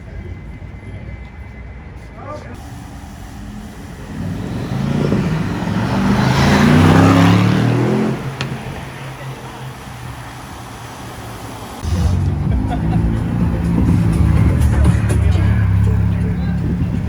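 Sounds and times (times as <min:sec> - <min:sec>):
car accelerating past: 0:03.5 - 0:17.0.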